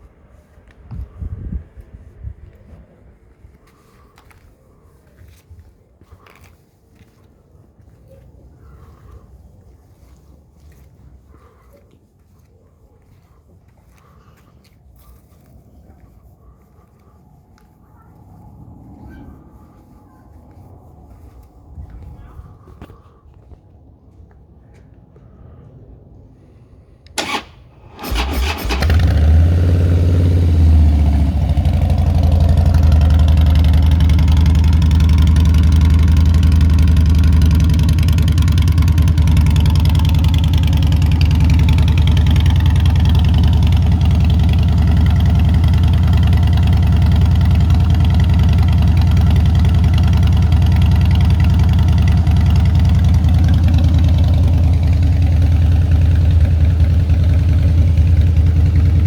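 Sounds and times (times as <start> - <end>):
motorcycle engine cranking: 27.2 - 34.3
motorcycle engine idling: 27.2 - 59.0.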